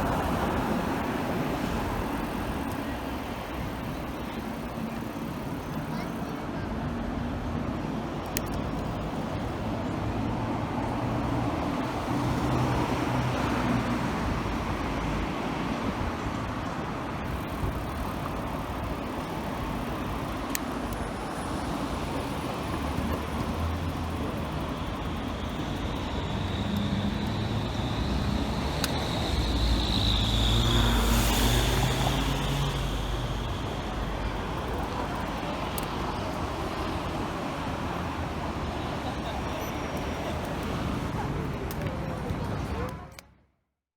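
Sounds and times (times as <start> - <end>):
cars passing: 0.0 - 43.1
high whine: 8.4 - 37.3.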